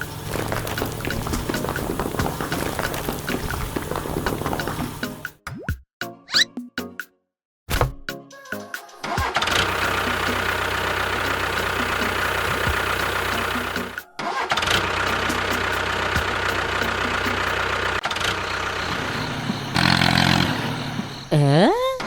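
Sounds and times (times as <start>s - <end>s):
engine running: 0.0s - 5.4s, 9.3s - 21.5s.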